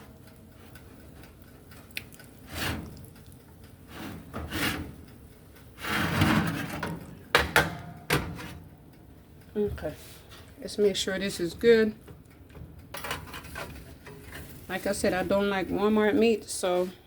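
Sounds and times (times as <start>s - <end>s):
scraping and rubbing in kitchen: 2.4s - 3.0s, 3.8s - 5.0s, 5.8s - 7.0s, 13.0s - 17.0s.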